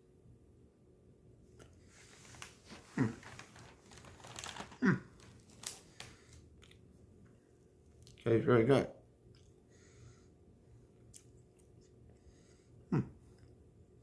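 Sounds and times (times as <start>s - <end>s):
plastic package crinkling: 2.3s - 6.4s
cookie being bitten: 11.0s - 11.8s.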